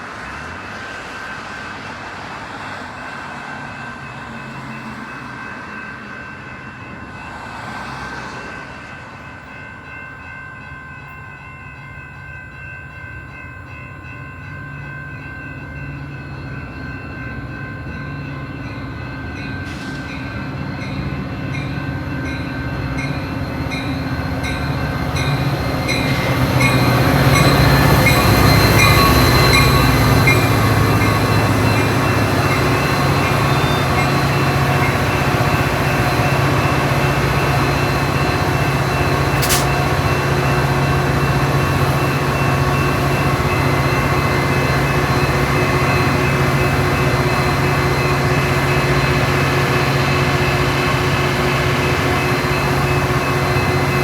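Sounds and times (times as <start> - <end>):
diesel train engine hum: 0.0 - 54.0
sharp click: 39.4 - 39.8.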